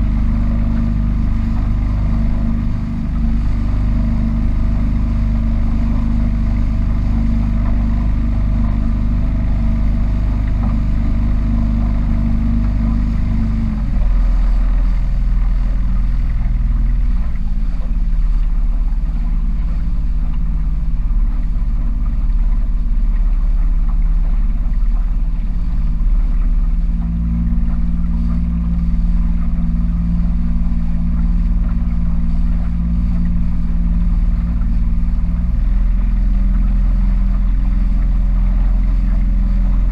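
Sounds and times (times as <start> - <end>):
powerboat engine running: 0.0 - 39.9.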